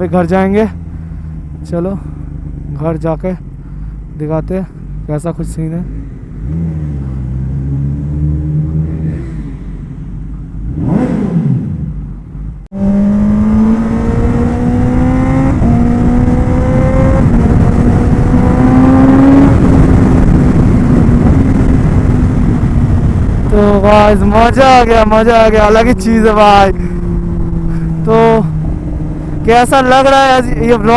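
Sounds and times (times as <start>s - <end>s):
motorcycle engine accelerating: 0.0s - 30.9s
wind rushing over microphone: 12.7s - 30.9s.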